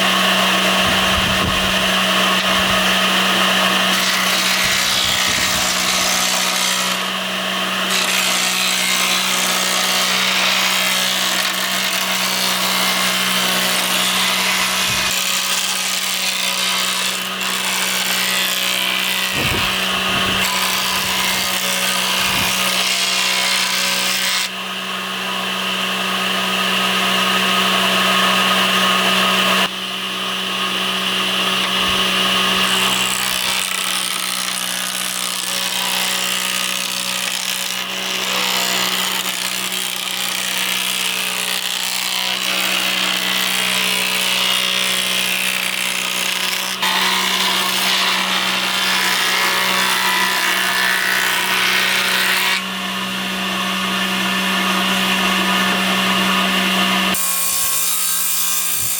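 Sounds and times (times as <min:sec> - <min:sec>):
power tool cutting wood: 0:00.0 - 0:58.9.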